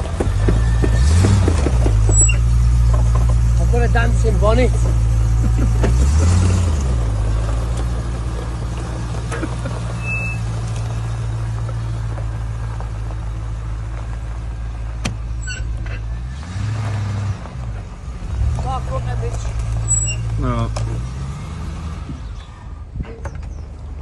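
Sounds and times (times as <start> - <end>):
car engine idling: 0.0 - 16.4.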